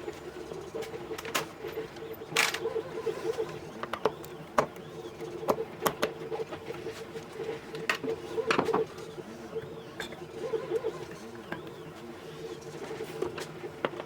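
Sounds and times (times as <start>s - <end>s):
clicks and knocks of small parts: 2.4s - 2.7s.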